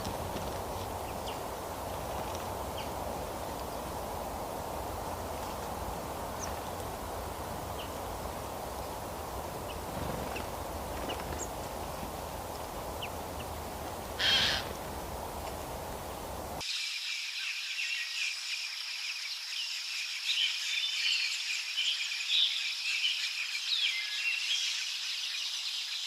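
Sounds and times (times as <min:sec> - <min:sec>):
birds chirping: 0:00.0 - 0:16.6
steady outdoor rush: 0:00.0 - 0:16.6
loud harsh bird call: 0:14.2 - 0:14.8.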